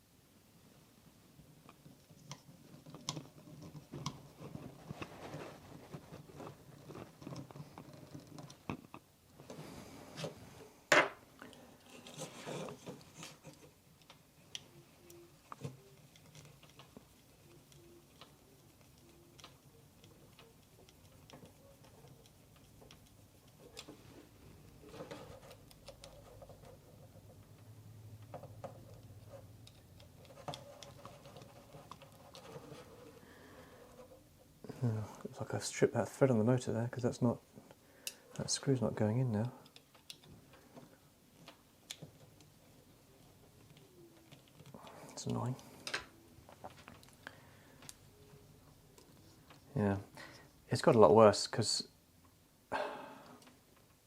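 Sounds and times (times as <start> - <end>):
plastic parts clicking and tapping: 1.6 - 5.0, 39.4 - 48.3.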